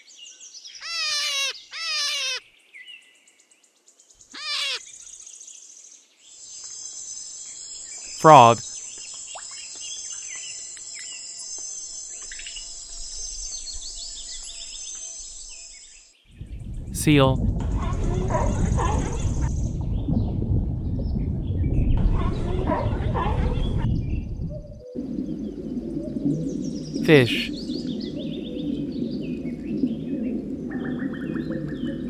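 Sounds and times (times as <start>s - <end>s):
hare squealing cries: 0.8s - 2.4s, 4.4s - 4.8s.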